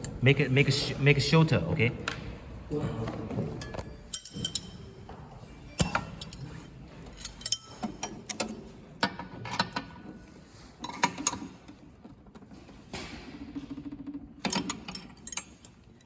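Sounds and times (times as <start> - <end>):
machine metallic clicks and clinks: 3.6 - 5.0, 5.7 - 10.1, 13.7 - 16.0.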